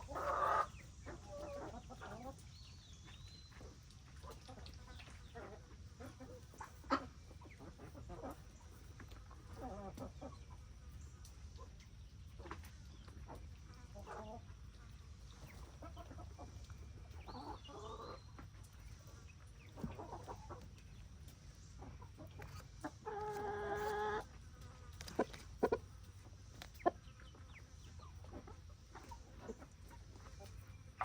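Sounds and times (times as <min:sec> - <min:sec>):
chickens clucking: 0:00.0 - 0:31.0.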